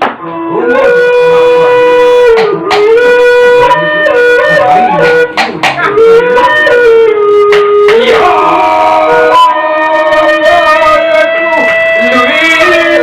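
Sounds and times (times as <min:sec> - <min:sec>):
wind instrument melody: 0:00.2 - 0:13.0
sharp percussion strokes: 0:02.3 - 0:08.6.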